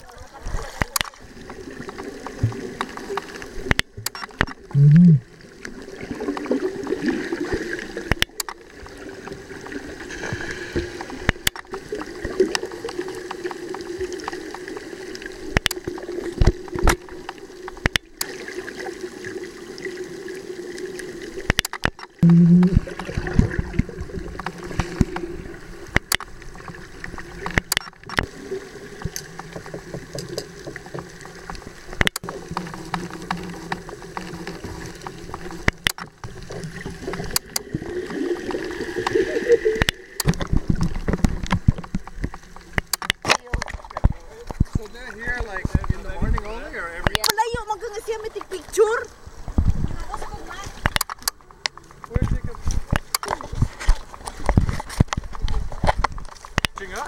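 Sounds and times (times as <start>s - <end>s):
water gurgling and sloshing: 0.0s - 57.0s
loud low hum: 4.7s - 5.2s, 22.2s - 22.9s
sharp clicks and knocks: 15.5s - 18.3s, 21.4s - 22.8s, 25.9s - 26.4s, 27.4s - 28.3s, 32.0s - 34.3s, 35.0s - 37.8s, 39.8s - 44.8s, 50.8s - 53.4s, 54.0s - 57.0s.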